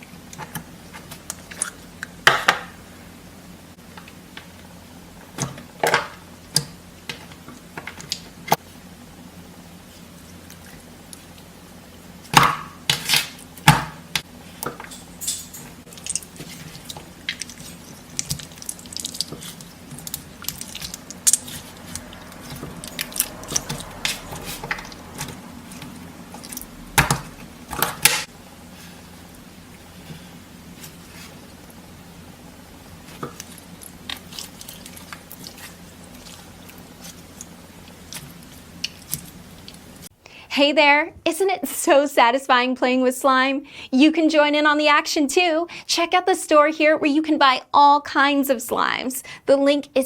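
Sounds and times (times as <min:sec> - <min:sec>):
slime squishing and popping: 0:16.0 - 0:25.3.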